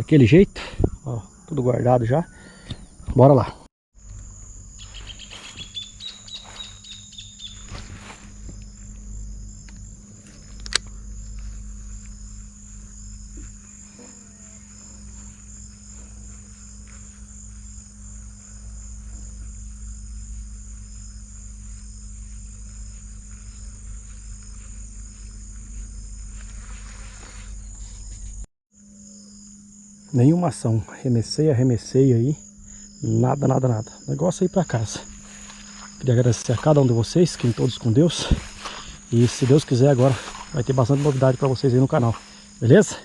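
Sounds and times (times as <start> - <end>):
insects chirring: 0.0 - 43.0
low rumble: 7.6 - 14.0
sharp click: 10.6 - 10.9.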